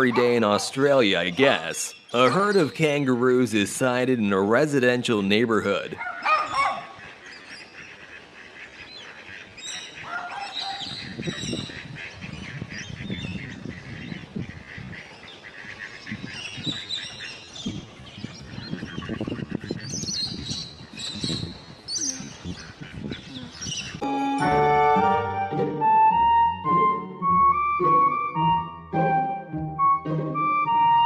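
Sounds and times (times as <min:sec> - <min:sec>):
birds calling: 0:00.0 - 0:24.4.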